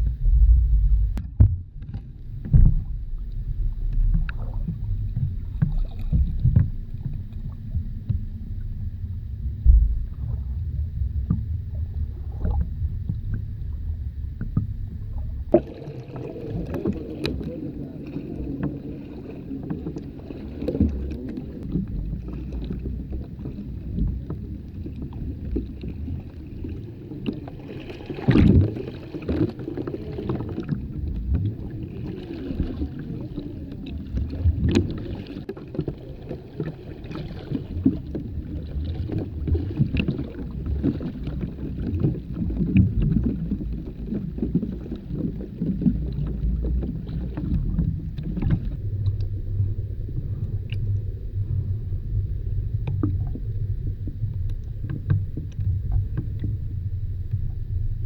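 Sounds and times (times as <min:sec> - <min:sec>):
water sloshing and lapping: 0:00.0 - 0:58.0.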